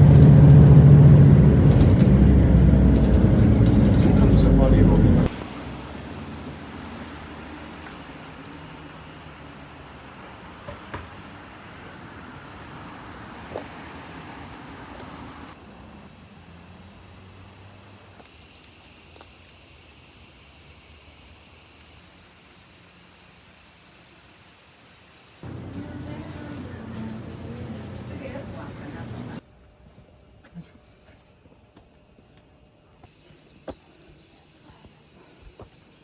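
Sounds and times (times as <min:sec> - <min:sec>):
insects shrilling: 0:05.3 - 0:25.4, 0:29.4 - 0:36.0.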